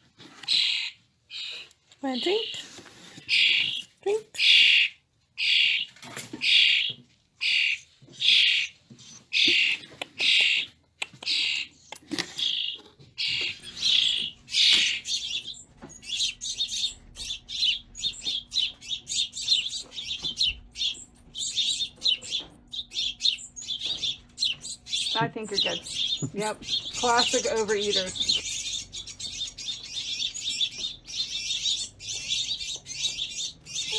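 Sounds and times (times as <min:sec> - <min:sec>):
nestling birds chirping: 0:13.2 - 0:33.9.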